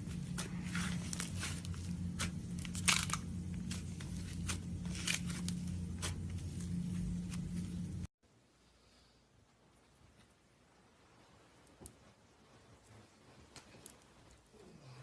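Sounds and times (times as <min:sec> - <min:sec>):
low hum: 0:00.0 - 0:08.1.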